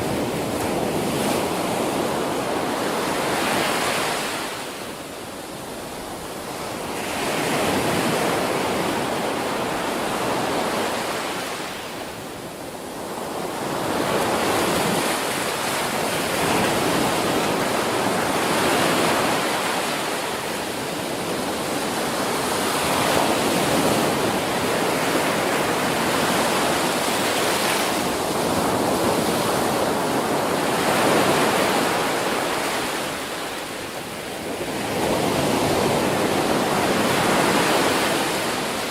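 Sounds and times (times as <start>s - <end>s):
ocean waves breaking: 13.0s - 38.9s.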